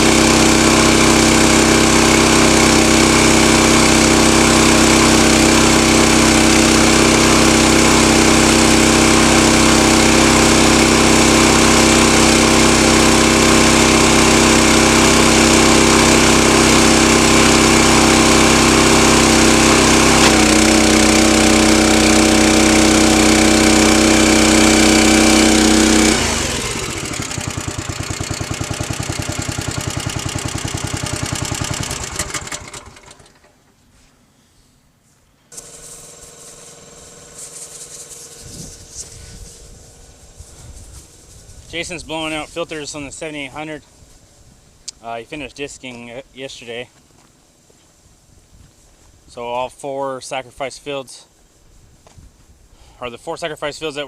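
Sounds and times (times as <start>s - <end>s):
small engine running: 0.0s - 33.7s, 35.5s - 43.5s.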